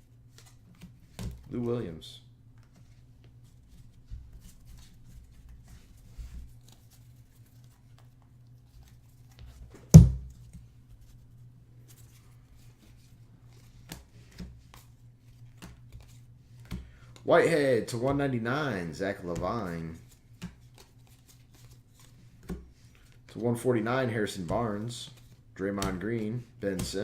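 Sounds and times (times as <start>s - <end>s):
loud thump: 10.0s - 10.3s.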